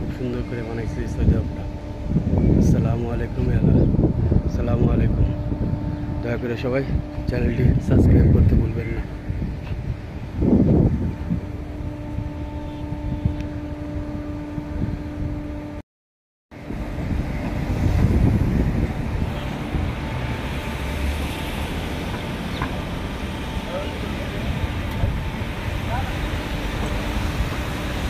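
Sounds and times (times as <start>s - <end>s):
car engine and road noise: 16.6s - 28.0s.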